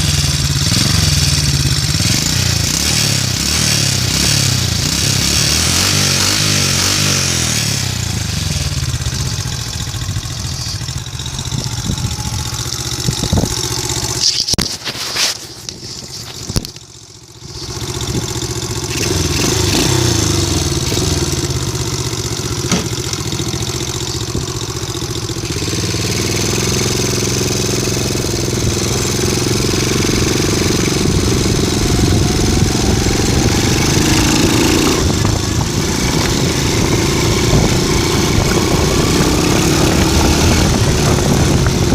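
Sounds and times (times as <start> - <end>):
vehicle engine idling: 0.0 - 5.0, 7.3 - 41.9
exhaust pops: 9.9 - 19.4, 20.5 - 24.6, 30.2 - 41.9.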